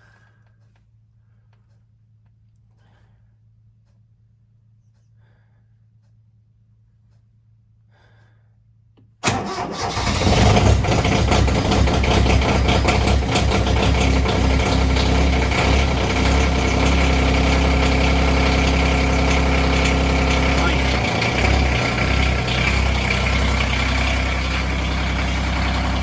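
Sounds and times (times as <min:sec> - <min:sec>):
diesel tractor engine starting: 0:09.2 - 0:26.0.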